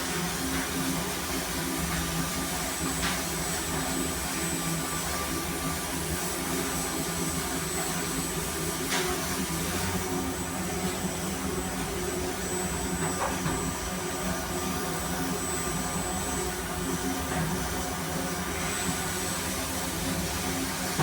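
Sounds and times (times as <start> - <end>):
high steady whine: 0.0 - 21.0.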